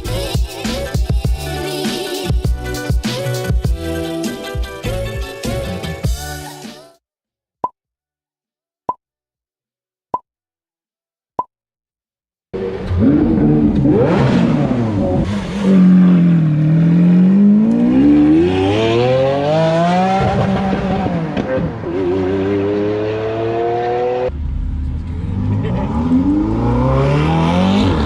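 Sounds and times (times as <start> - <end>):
car engine revving and accelerating: 12.6 - 28.0.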